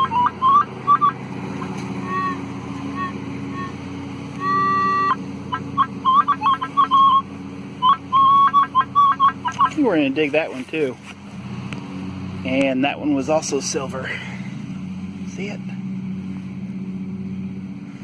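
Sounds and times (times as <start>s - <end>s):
lawnmower engine running: 0.0s - 18.0s
metal detector beeps: 7.8s - 9.8s.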